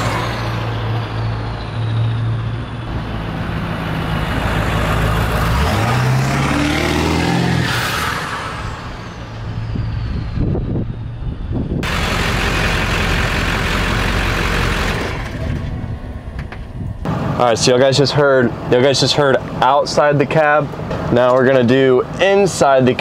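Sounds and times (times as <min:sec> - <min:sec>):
diesel truck accelerating past: 0:00.0 - 0:16.1
road noise: 0:00.0 - 0:23.0
high turbo whistle: 0:07.0 - 0:12.4.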